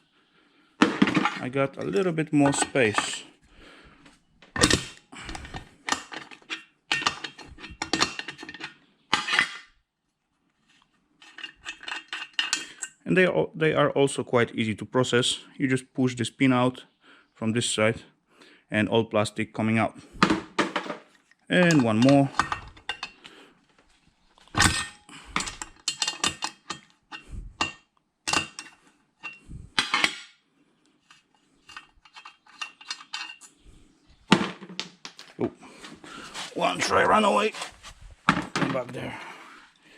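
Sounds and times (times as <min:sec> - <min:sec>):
small metal parts clinking: 0:11.2 - 0:12.9, 0:21.6 - 0:23.2, 0:24.5 - 0:30.2, 0:31.1 - 0:33.5
metal clatter: 0:24.5 - 0:30.2, 0:31.7 - 0:33.5.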